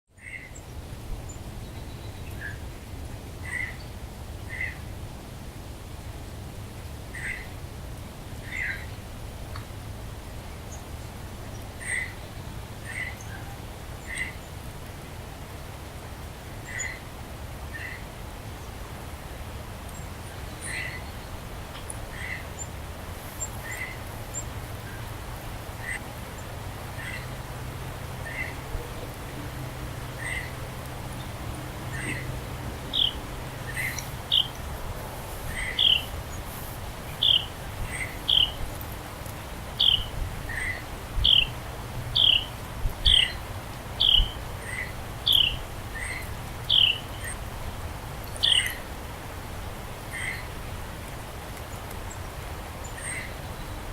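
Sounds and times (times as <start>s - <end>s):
bird calls: 3.4s - 3.9s, 4.5s - 4.8s, 11.8s - 14.5s, 19.9s - 22.7s, 23.4s - 25.1s, 25.8s - 27.4s, 28.2s - 29.2s, 30.1s - 34.7s, 35.4s - 36.4s, 37.1s - 38.7s, 39.8s - 41.6s, 42.2s - 47.4s, 48.2s - 48.8s, 50.1s - 50.6s, 52.8s - 53.8s
short bird calls: 35.5s - 36.1s.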